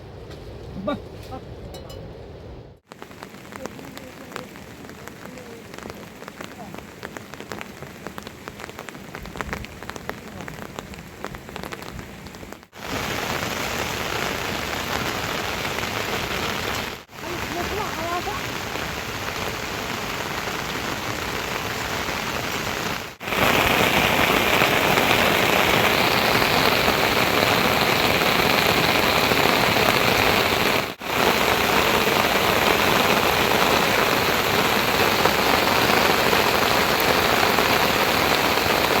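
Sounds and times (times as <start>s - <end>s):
heavy rain falling: 2.9s - 39.0s.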